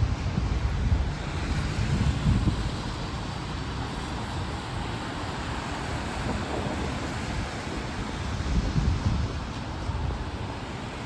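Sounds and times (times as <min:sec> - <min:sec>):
wet traffic: 0:00.0 - 0:11.0.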